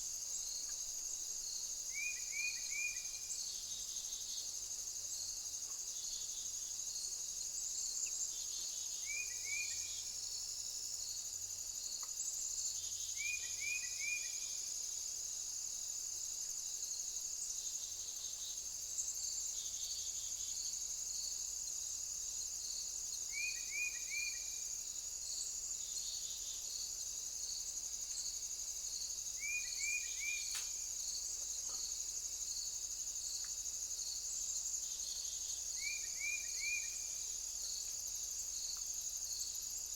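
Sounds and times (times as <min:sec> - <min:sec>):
insect chirping in pulses: 0:00.0 - 0:39.9
insects trilling high pitch: 0:29.2 - 0:31.5.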